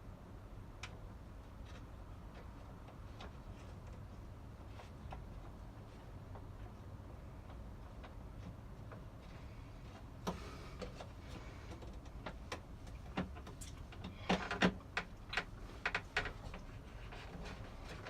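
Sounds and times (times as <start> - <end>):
hard parts clicking and knocking: 9.9 - 18.0.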